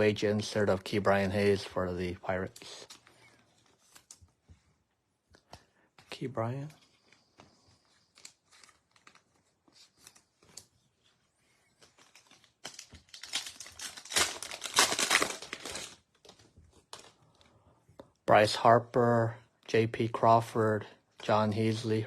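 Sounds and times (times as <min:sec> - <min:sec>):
card pack wrapper tearing: 0:11.8 - 0:17.2.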